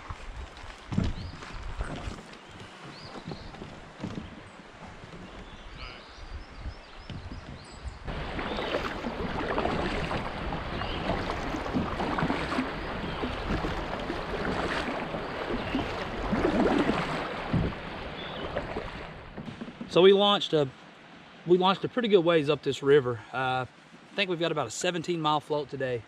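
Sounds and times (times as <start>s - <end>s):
river water rushing and splashing: 8.1s - 25.0s.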